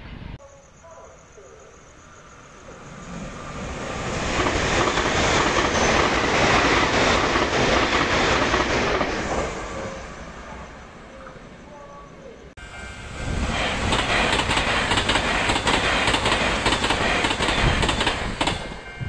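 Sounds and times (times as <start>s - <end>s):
train passing at high speed: 1.6s - 19.0s.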